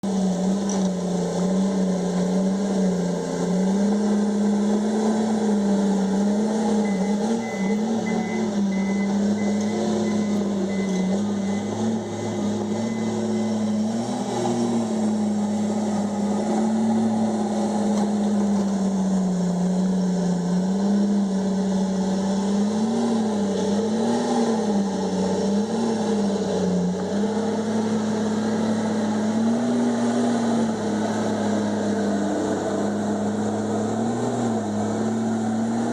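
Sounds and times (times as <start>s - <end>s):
bulldozer diesel engine running: 0.0s - 35.9s
quick high beeps: 6.8s - 13.8s.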